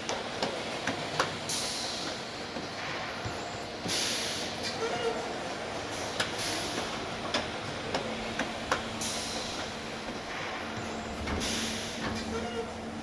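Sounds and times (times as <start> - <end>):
machinery noise and hum: 0.0 - 13.0.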